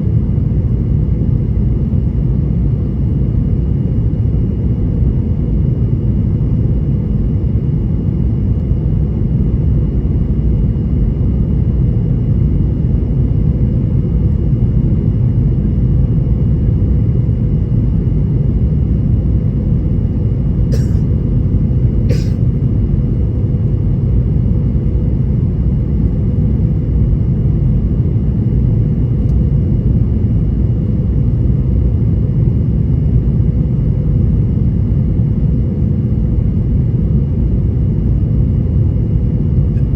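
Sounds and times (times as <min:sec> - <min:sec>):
jet engine roar and rushing air: 0:00.0 - 0:39.9.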